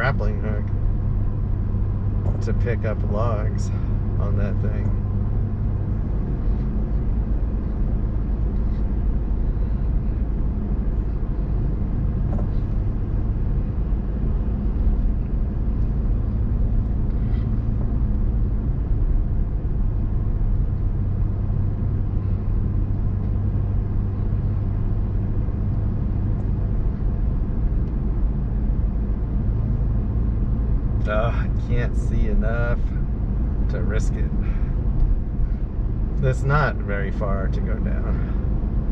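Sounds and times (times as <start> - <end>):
vehicle engine and road rumble: 0.0 - 38.9.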